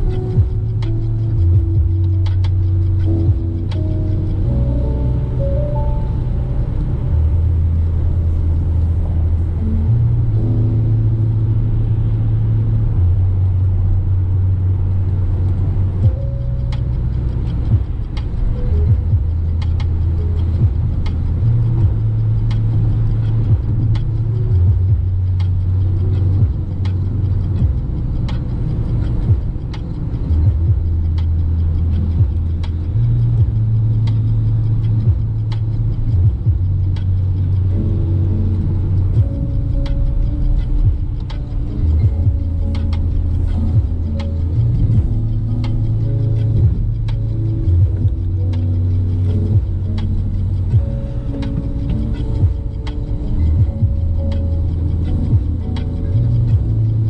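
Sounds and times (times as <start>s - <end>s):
car radio music: 0.0s - 57.0s
van engine and road rumble: 0.0s - 57.0s.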